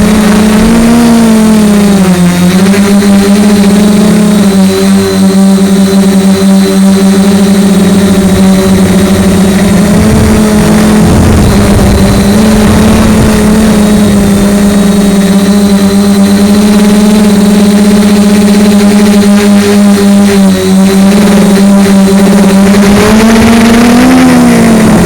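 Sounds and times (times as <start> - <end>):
drone propellers humming: 0.0 - 25.0
low wind rumble: 6.6 - 17.8.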